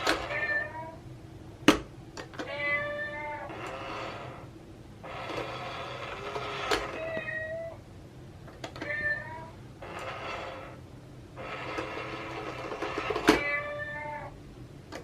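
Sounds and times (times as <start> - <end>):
cat meowing: 0.2 - 1.0, 2.4 - 3.6, 6.8 - 7.8, 8.8 - 9.6, 13.3 - 14.4.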